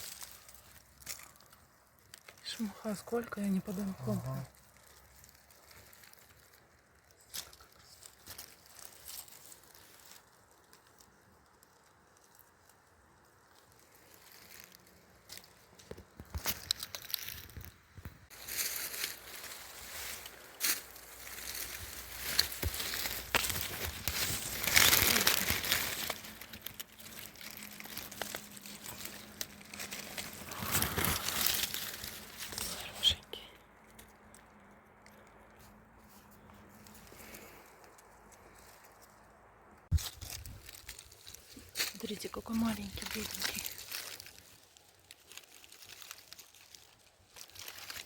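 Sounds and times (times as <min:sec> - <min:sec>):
faint outdoor hiss: 0:00.0 - 0:48.0
soft rustles: 0:04.2 - 0:33.2.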